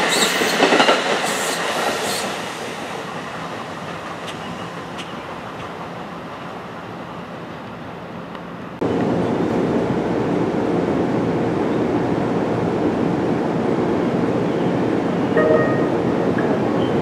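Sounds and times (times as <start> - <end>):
electric train rumbling: 0.0 - 17.0
distant train horn: 15.3 - 16.5.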